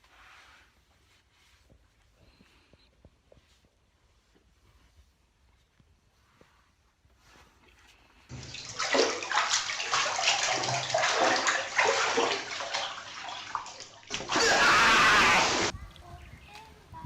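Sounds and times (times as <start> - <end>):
water splashing and sloshing: 7.7 - 15.7.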